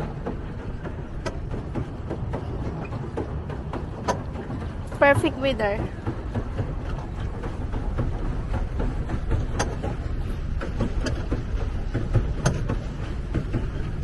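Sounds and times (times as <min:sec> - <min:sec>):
pedal boat low rumble: 0:00.0 - 0:14.0
sharp knocks from pedalling: 0:05.8 - 0:14.0.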